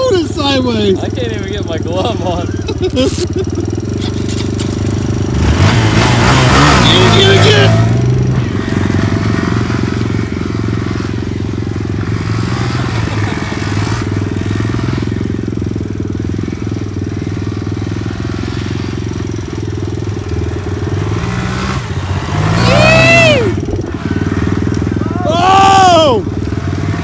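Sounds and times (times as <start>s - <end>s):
mini bike engine running: 0.0s - 27.0s.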